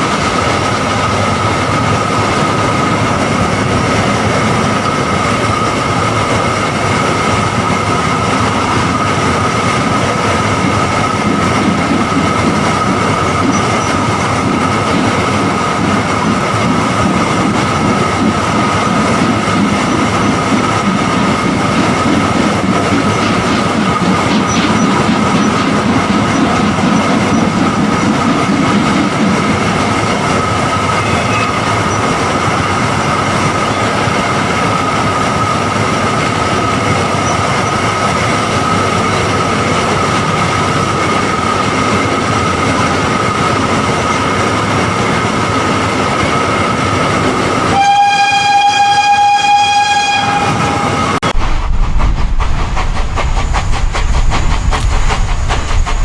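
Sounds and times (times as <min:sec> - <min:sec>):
train rolling on rails: 0:00.0 - 0:56.0
steam locomotive whistle: 0:31.0 - 0:31.7, 0:47.7 - 0:51.2
deep rumble with rapid ticking: 0:51.2 - 0:56.0.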